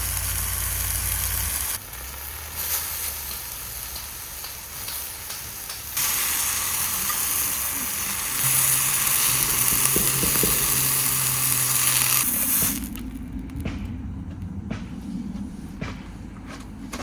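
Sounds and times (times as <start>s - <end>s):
food sizzling in a pan: 0.0s - 13.1s.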